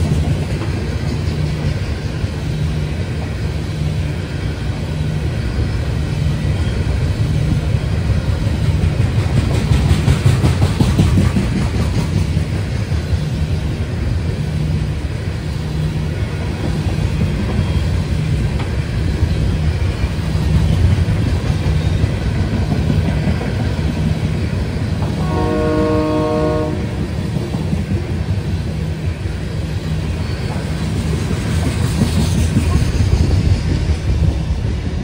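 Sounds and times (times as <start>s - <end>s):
freight train wheels rumbling on rail: 0.0s - 35.0s
train horn chord: 25.2s - 27.1s.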